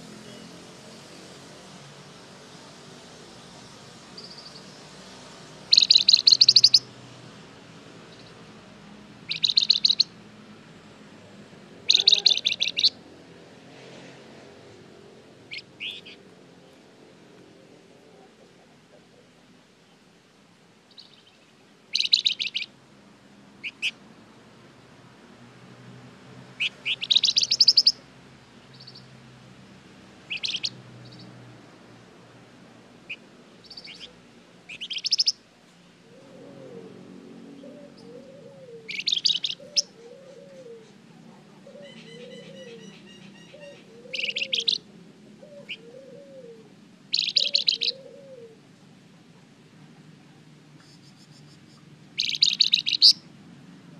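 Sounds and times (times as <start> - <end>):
bird chirps and trills: 4.2 - 4.9, 5.7 - 6.9, 8.1 - 8.4, 9.2 - 10.2, 11.8 - 13.0, 15.5 - 16.8, 20.9 - 22.8, 23.6 - 24.0, 26.6 - 28.0, 28.6 - 29.1, 30.3 - 31.4, 33.1 - 35.4, 37.5 - 41.0, 41.6 - 48.4, 50.8 - 53.3
low cooing: 11.9 - 12.8, 36.0 - 48.6.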